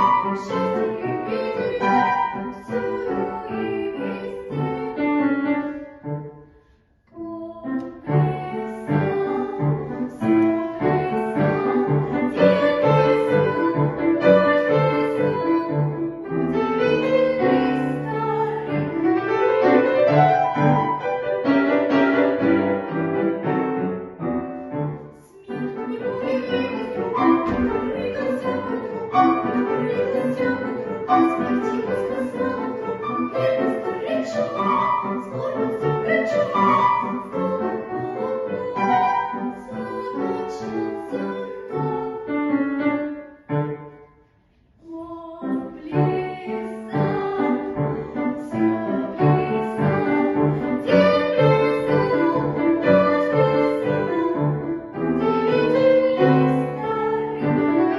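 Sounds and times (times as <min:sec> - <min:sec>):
classical solo singing with vibrato: 0:00.0 - 0:05.2, 0:16.8 - 0:20.2, 0:25.3 - 0:42.4
piano: 0:00.0 - 0:57.9.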